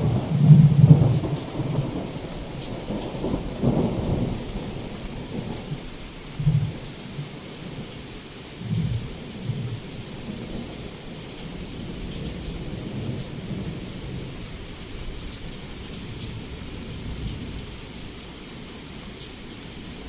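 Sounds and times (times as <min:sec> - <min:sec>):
rolling thunder: 0:00.0 - 0:07.2, 0:08.6 - 0:18.1
heavy rain falling: 0:00.0 - 0:20.0.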